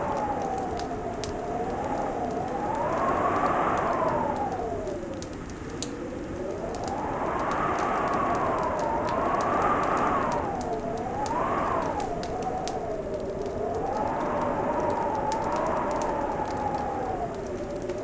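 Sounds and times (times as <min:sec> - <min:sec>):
fireplace crackling: 0:00.0 - 0:18.0
wind-like whistling tone: 0:00.0 - 0:18.0.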